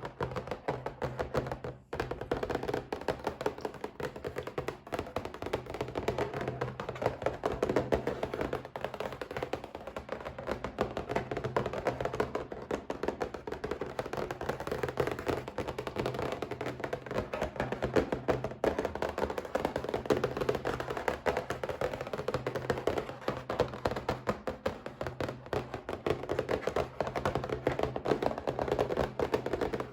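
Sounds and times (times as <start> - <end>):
fingers tapping on a box: 0.0 - 29.9.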